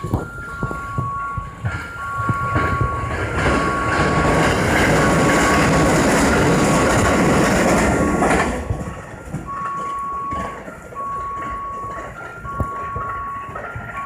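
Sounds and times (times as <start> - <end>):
two-pitch electronic warning tone: 0.0 - 6.5, 9.2 - 14.0
train wagons rumbling on rails: 0.0 - 14.0.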